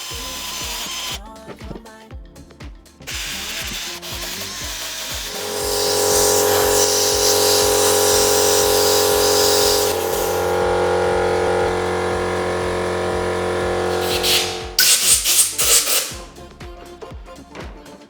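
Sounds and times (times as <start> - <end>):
electric power tool motor whirring: 0.0 - 1.2, 3.1 - 16.3.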